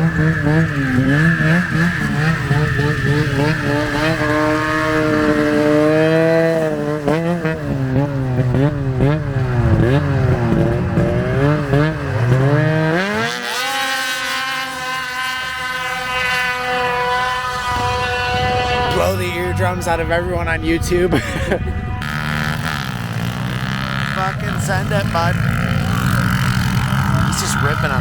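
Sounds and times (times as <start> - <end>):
small vehicle engine revving: 0.0 - 28.0.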